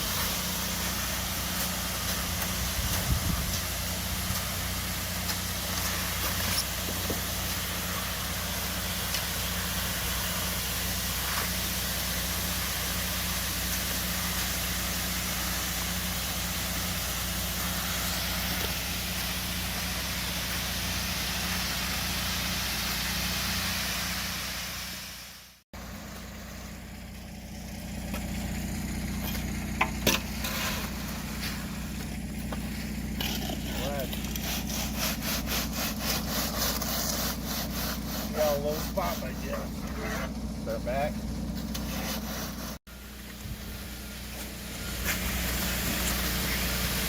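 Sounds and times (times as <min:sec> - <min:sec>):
broad hiss: 0:00.0 - 0:26.5, 0:42.4 - 0:47.0
engine running: 0:00.0 - 0:47.0.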